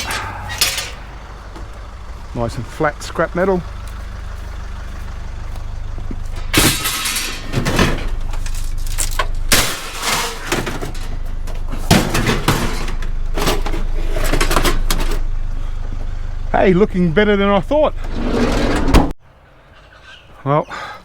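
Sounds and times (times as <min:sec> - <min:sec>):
scrap metal clattering: 0:00.0 - 0:02.3, 0:03.8 - 0:15.3
steady low hum: 0:00.0 - 0:19.8.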